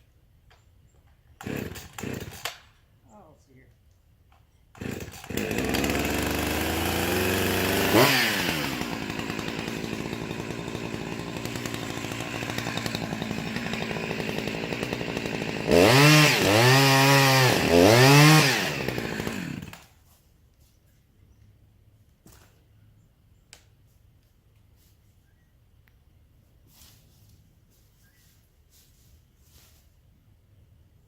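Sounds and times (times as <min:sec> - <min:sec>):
chainsaw running and revving: 0:01.4 - 0:02.6, 0:04.8 - 0:19.9.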